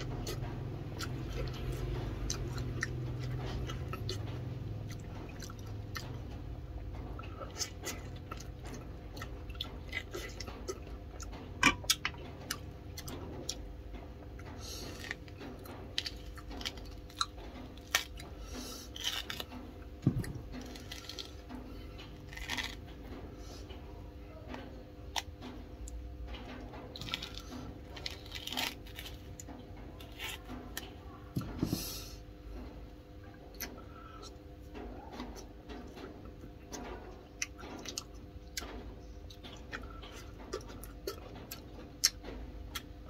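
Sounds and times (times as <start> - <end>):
man chewing food: 0.0 - 23.8, 25.0 - 32.3, 33.1 - 43.0
rustling and tearing fruit peel: 14.4 - 23.7, 25.1 - 32.1.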